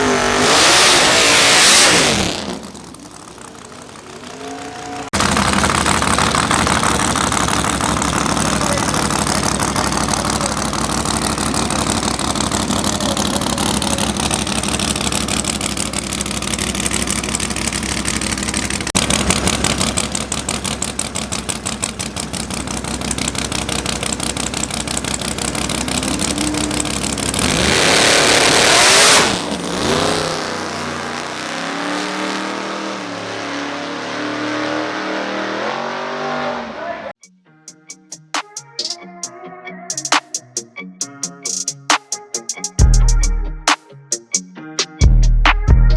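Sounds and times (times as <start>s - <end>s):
race car engines revving: 0.0s - 37.2s
music: 37.2s - 45.9s.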